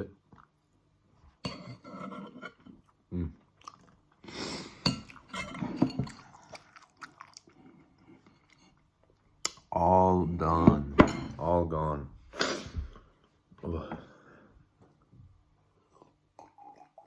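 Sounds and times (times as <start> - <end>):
cutlery clinking on a dish: 1.4 - 2.7
close-up chewing: 2.7 - 5.3, 6.0 - 9.5.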